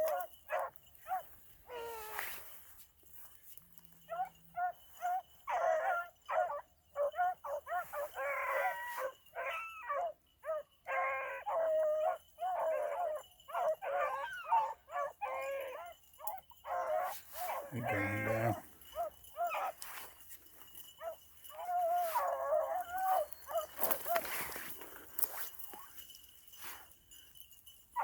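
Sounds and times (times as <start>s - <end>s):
hounds baying: 0.0s - 2.5s, 3.8s - 26.8s.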